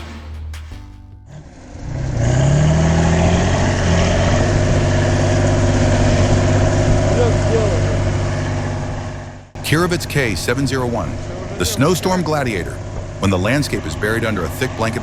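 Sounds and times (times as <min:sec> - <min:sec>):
background music: 0:00.0 - 0:01.8
heavy vehicle engine revving: 0:00.0 - 0:15.0.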